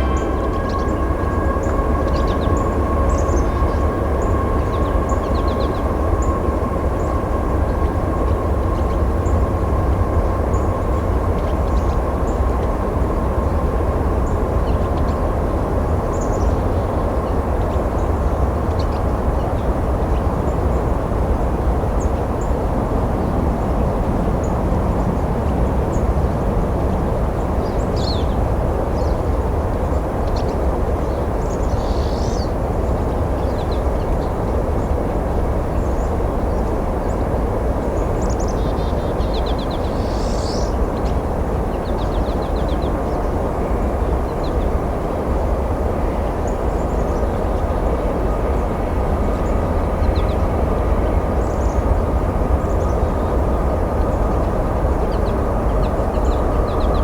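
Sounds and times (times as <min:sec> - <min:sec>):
birds chirping: 0:00.0 - 0:09.2, 0:35.8 - 0:44.8
train rumbling past: 0:00.0 - 0:57.0.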